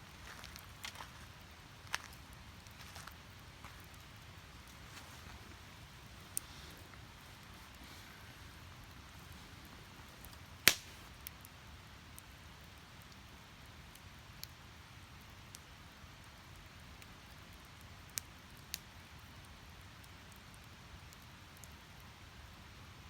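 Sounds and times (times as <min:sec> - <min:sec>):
firewood burning with crackles: 0:00.0 - 0:23.0
sharp fire pops: 0:06.2 - 0:11.2.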